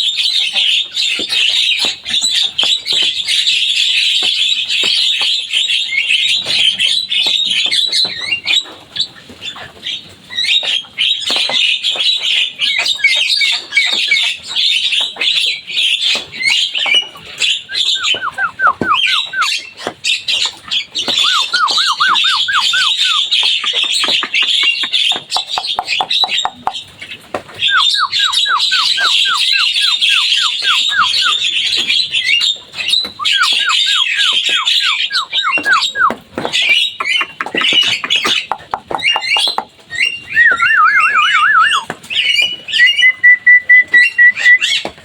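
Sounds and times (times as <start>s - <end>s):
bird chattering and squawking: 16.8s - 44.9s.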